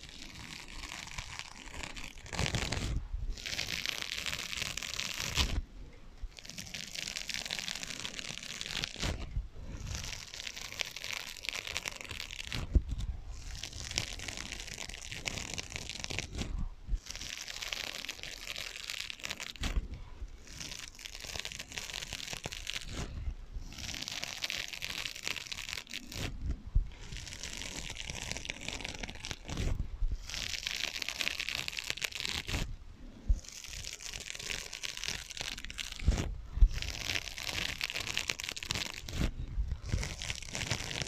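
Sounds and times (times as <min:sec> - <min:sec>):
scratching on sponges: 0:00.0 - 0:41.0.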